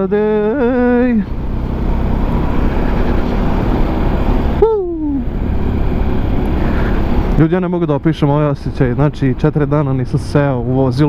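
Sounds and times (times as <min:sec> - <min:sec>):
wind and road rush: 0:00.0 - 0:11.0
person speaking: 0:04.6 - 0:05.3.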